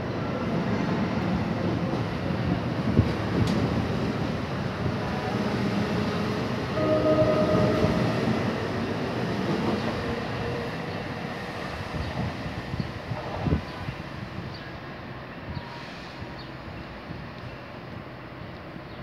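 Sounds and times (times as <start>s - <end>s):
train horn blast: 6.8s - 8.6s.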